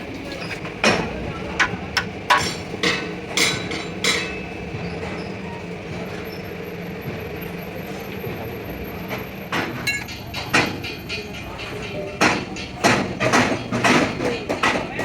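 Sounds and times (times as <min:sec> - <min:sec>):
low mechanical hum: 0:00.0 - 0:15.0
sharp metal strikes: 0:09.9 - 0:10.7.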